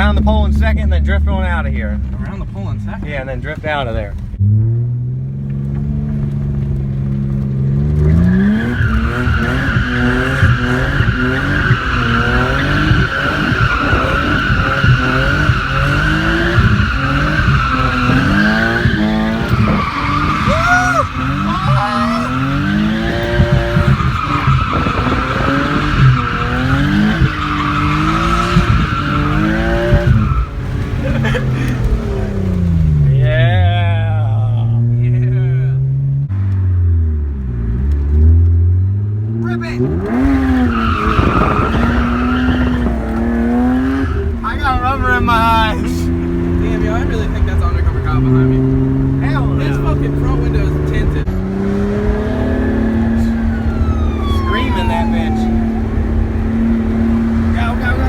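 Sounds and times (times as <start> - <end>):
car engine revving: 0.0 - 58.0
tyres squealing: 8.0 - 33.2, 39.4 - 58.0.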